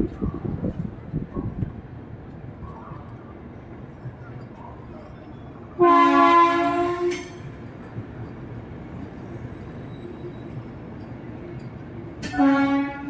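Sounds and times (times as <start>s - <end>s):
train rumbling: 0.0s - 13.0s
train horn blast: 5.8s - 7.4s, 12.2s - 13.0s.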